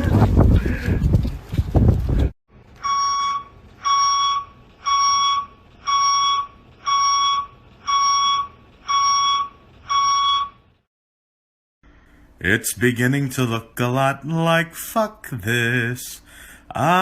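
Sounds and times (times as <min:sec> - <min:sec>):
electronic alarm beeping: 0:02.8 - 0:10.7.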